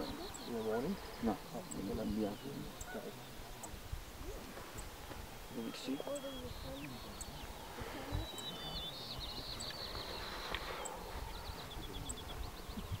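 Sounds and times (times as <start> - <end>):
songbird singing trilled phrases: 0.0 - 13.0.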